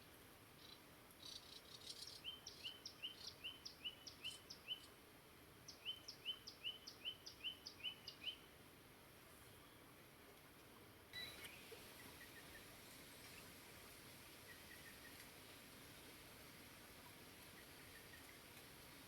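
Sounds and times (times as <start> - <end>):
songbird chirping: 0.6 - 5.0, 5.7 - 8.5, 11.1 - 13.6, 14.3 - 15.4, 17.0 - 19.0
stream hiss: 11.2 - 19.0.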